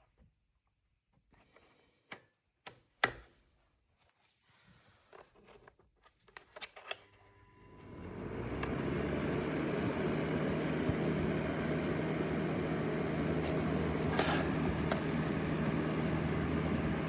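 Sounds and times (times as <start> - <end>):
fan heater whooshing with hum: 7.8 - 17.0.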